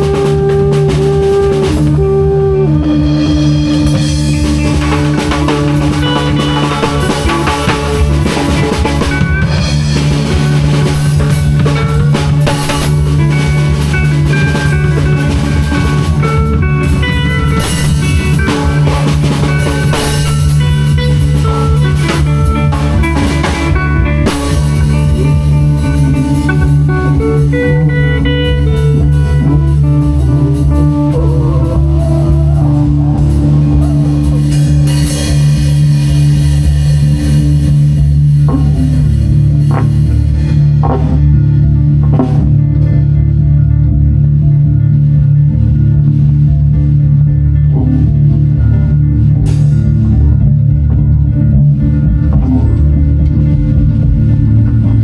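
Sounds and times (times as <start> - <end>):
drum kit: 0.0 - 55.0
guitar playing melodic lines: 0.0 - 55.0
steady held low note: 0.0 - 55.0.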